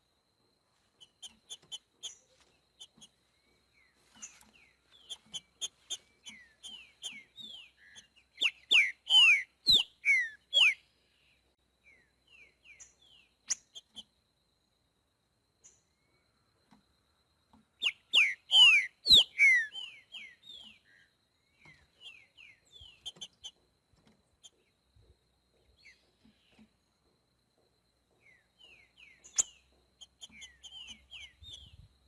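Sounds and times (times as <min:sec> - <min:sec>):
bird singing whistled notes: 0:03.8 - 0:10.9, 0:17.8 - 0:23.5, 0:28.2 - 0:32.0.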